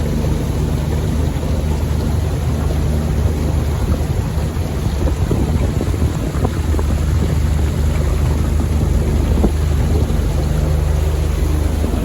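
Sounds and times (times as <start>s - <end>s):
outboard motor running: 0.0s - 12.0s
wind buffeting microphone: 0.0s - 12.0s.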